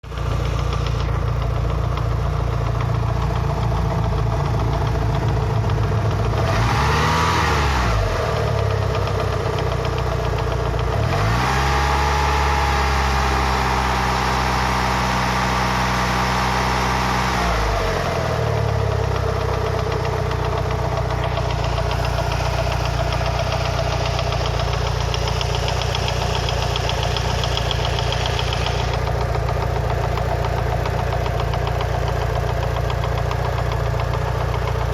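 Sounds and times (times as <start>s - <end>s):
car engine idling and revving: 0.0s - 34.9s
engine knocking: 0.0s - 34.9s.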